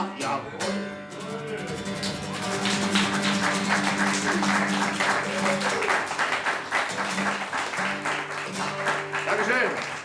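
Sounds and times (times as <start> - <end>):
acoustic guitar notes ringing: 0.0 - 5.5
audience applauding: 1.9 - 10.0.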